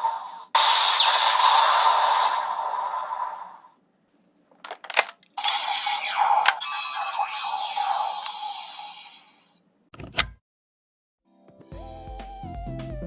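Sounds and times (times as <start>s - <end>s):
sharp plastic clicks: 4.6s - 5.4s, 6.4s - 6.6s
electronic toy sound effects: 4.7s - 9.4s.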